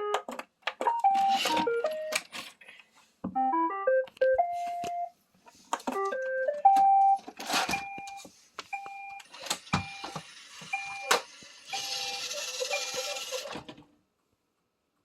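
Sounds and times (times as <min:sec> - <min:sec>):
handling clicks and knocks: 0:00.0 - 0:02.6
robot vacuum beeping: 0:08.8 - 0:13.6
robot vacuum whirring: 0:09.6 - 0:13.6.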